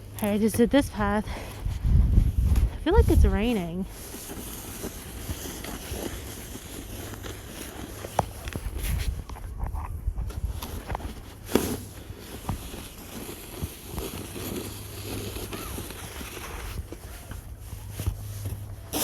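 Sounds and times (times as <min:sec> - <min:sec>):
low rumble on microphone: 0:00.0 - 0:04.1, 0:08.3 - 0:11.5
shovel scraping snow: 0:00.2 - 0:09.2, 0:10.3 - 0:19.0
footsteps in snow: 0:00.2 - 0:19.0.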